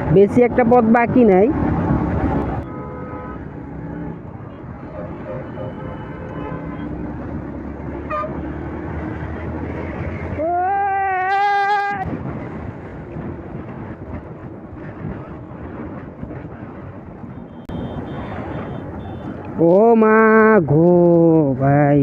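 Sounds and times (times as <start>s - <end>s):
motorcycle riding in traffic: 0.0s - 22.0s
vehicle horn blowing: 2.6s - 3.5s, 17.4s - 19.3s
short horn beep: 17.4s - 19.3s.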